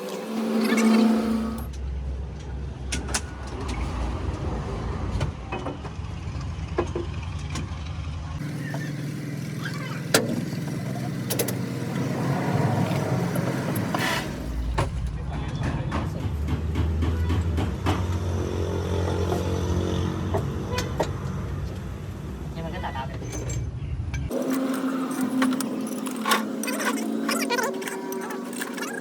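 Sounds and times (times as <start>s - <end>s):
vehicle engine running: 1.3s - 22.6s.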